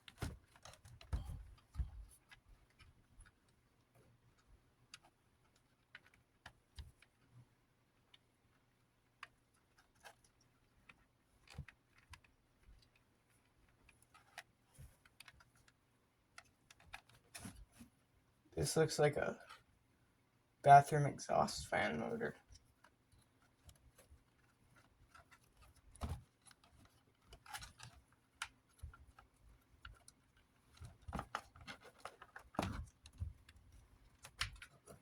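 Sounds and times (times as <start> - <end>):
plastic fan parts clicking: 22.5 - 35.0.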